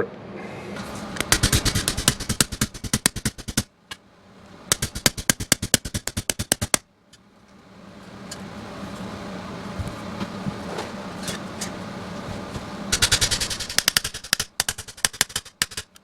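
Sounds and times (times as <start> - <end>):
steady low hum: 0.0 - 16.0
rapid clicks: 1.2 - 3.7, 4.7 - 6.8, 12.9 - 16.0.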